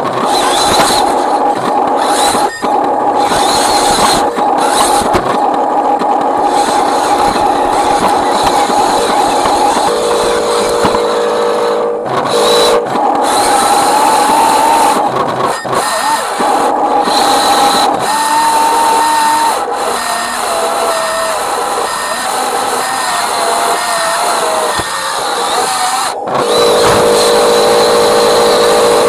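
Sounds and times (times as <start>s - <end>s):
electric motor and gearbox whining: 0.0s - 29.0s.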